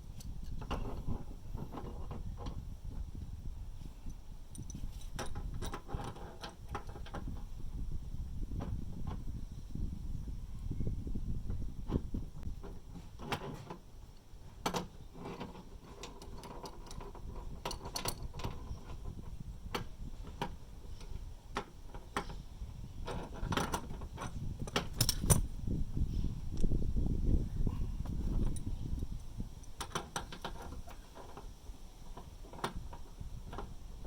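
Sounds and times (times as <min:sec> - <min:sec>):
low steady rumble: 0:17.0 - 0:32.2
metallic clicks of tools: 0:23.5 - 0:25.4.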